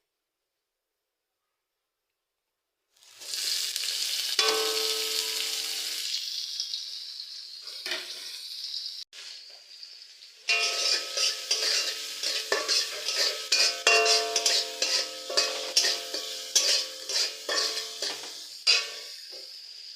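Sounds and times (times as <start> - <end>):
vegetables sizzling in hot oil: 2.9 - 19.9
metal clank against pan: 4.4 - 5.8, 7.8 - 8.2, 10.5 - 19.5.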